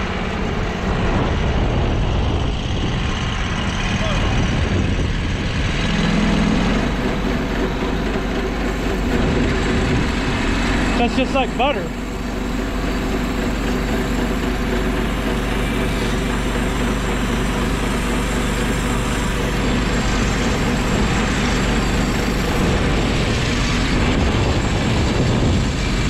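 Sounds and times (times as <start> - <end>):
gas engine running under load: 0.0 - 26.0
band blade sawing log: 5.9 - 25.5.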